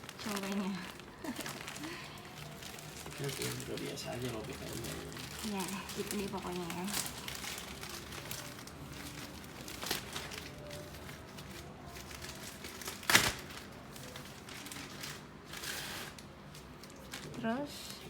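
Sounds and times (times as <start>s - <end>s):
plastic wrapping crinkling: 0.0s - 18.0s.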